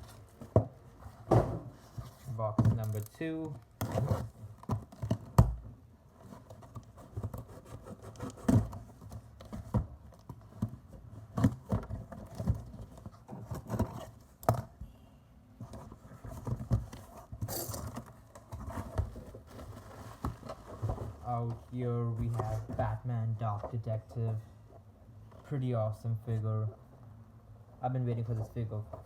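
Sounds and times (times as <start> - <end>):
cardboard box knocks and scrapes: 0.4 - 2.8, 6.6 - 14.1.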